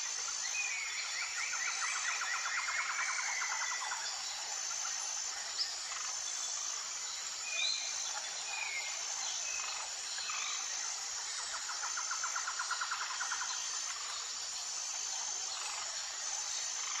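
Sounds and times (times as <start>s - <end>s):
insect chorus with high trill: 0.0s - 17.0s.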